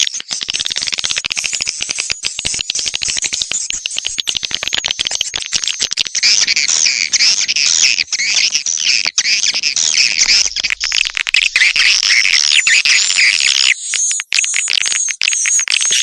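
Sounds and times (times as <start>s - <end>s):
fast sharp clicks: 0.0s - 16.0s
birds twittering chorus: 6.1s - 13.8s.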